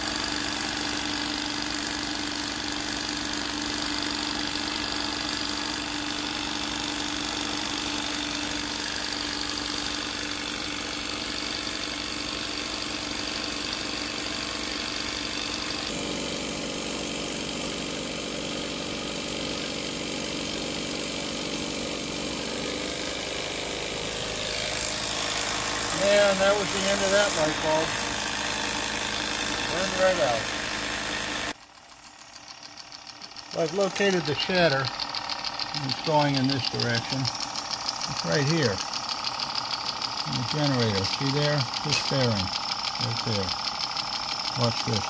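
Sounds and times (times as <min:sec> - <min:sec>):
model steam engine whirring: 0:00.0 - 0:45.0.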